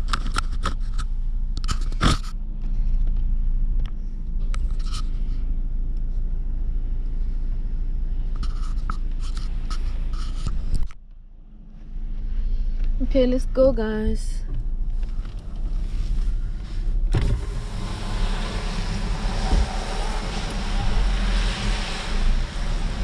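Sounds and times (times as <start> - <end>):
clicks and scrapes: 0.0 - 3.2, 4.5 - 5.3, 8.3 - 11.0
car engine and road hum: 0.0 - 23.0.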